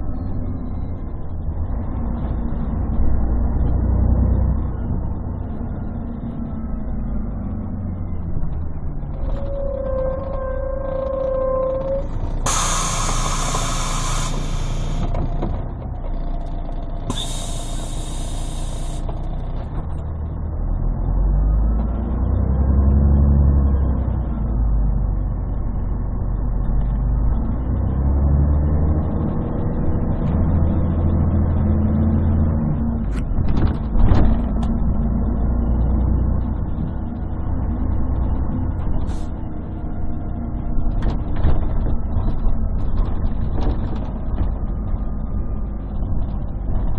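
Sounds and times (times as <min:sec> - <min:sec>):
bus diesel engine droning: 0:04.4 - 0:19.6
compressed air hissing: 0:12.5 - 0:15.2, 0:17.1 - 0:19.1.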